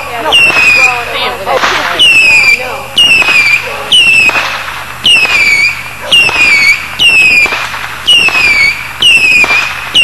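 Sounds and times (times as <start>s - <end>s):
firework bangs: 0.0s - 10.0s
firework whistle falling in pitch: 2.0s - 4.4s, 5.0s - 10.0s.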